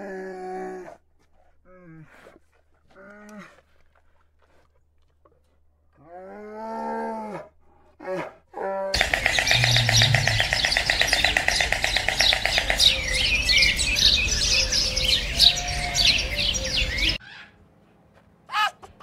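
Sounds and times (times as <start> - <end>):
birds chirping: 9.0 - 17.2
animal yelp: 9.0 - 17.5.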